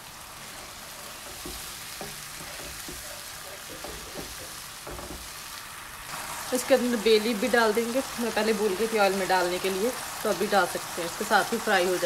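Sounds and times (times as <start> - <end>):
masala sizzling in hot oil: 0.0 - 12.0
spatula scraping and tapping: 1.1 - 5.4.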